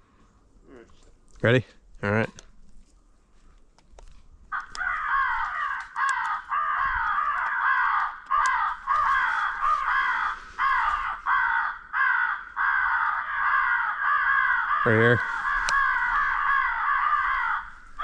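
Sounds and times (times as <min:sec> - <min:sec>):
crow cawing: 0:04.5 - 0:18.0.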